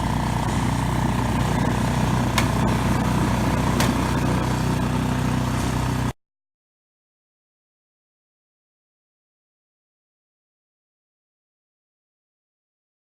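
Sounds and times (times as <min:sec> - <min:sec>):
engine running steadily: 0:00.0 - 0:06.2.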